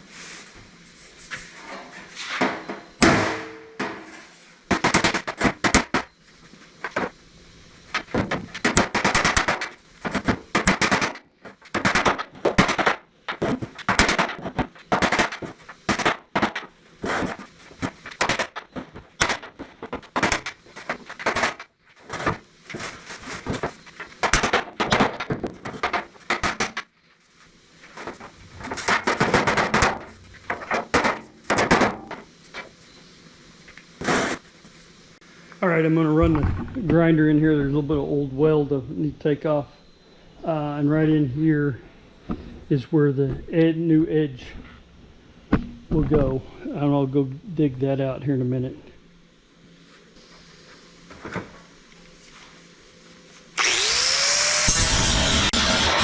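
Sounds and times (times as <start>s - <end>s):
hammer striking steel: 3.0s - 4.2s.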